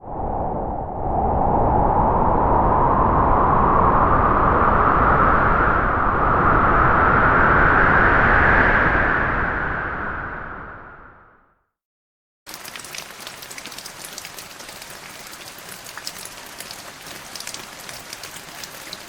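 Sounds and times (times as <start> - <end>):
wind blowing: 0.0 - 11.4.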